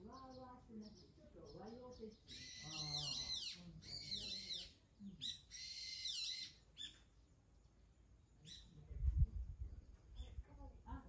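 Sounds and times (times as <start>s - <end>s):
bird chirping: 0.0s - 8.8s.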